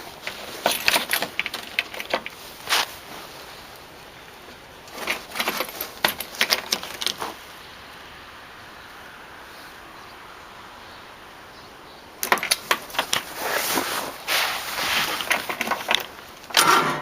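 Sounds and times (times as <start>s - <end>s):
sharp clicks and metallic rattles: 0.0s - 2.7s, 4.8s - 7.4s, 12.2s - 13.7s, 15.0s - 17.0s
faint steady hiss: 7.0s - 17.0s.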